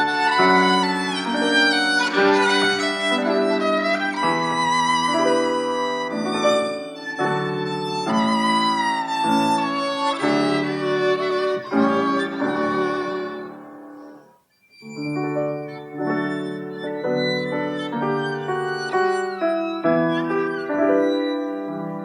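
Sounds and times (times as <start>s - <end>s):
piano accompaniment: 0.0s - 22.0s
violin melody with vibrato: 0.0s - 22.0s.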